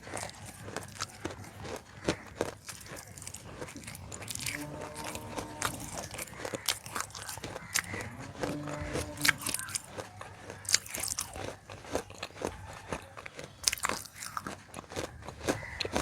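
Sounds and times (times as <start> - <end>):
crunchy chewing: 0.0 - 16.0.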